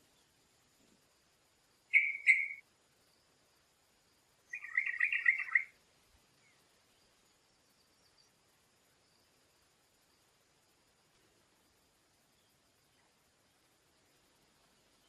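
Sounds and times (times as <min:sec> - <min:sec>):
bird chirping and chattering: 0:01.9 - 0:02.6, 0:04.5 - 0:05.7.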